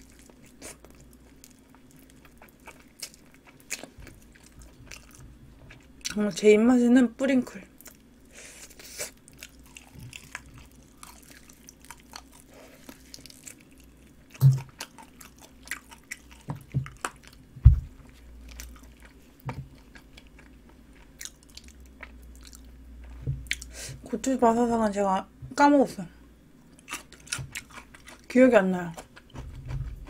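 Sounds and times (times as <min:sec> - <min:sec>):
person chewing with wet clicks: 0:00.0 - 0:06.4, 0:08.7 - 0:23.7, 0:26.8 - 0:30.0
low thumps: 0:14.4 - 0:14.6, 0:17.6 - 0:18.0.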